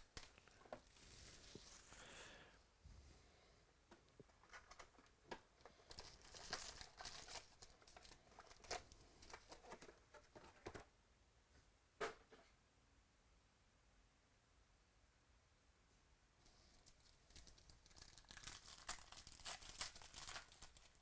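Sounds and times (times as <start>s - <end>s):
foil wrapper crinkling and tearing: 5.9s - 9.8s, 16.7s - 21.0s.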